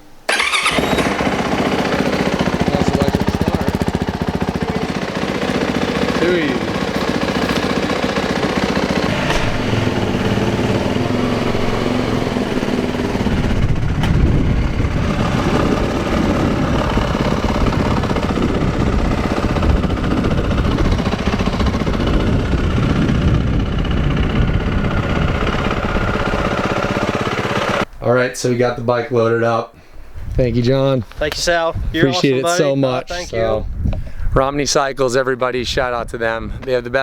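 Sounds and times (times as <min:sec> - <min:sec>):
dirt bike engine running: 0:00.3 - 0:27.8.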